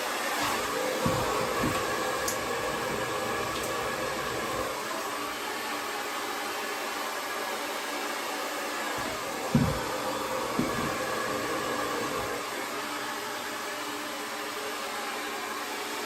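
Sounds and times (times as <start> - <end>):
hair dryer running: 0.0 - 16.0
dull bumps: 9.0 - 12.4.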